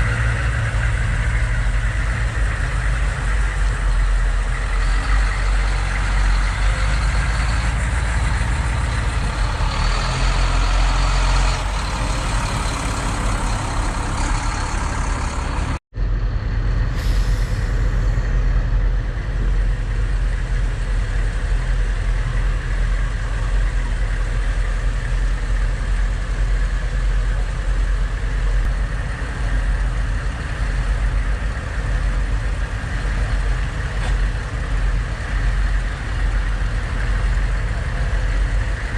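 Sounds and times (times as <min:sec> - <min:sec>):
truck engines rumbling: 0:00.0 - 0:38.9.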